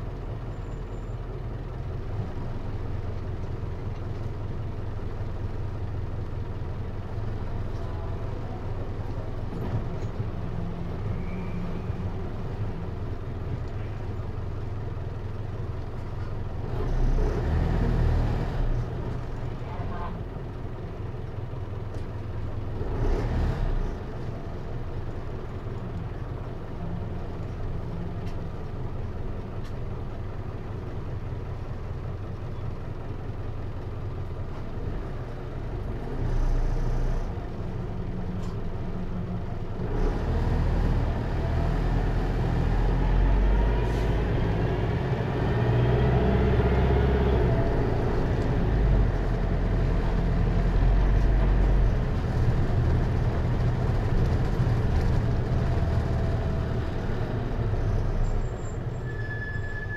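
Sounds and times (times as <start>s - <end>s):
diesel engine running: 0.0s - 59.9s
rising whine of bus accelerating: 35.1s - 59.9s.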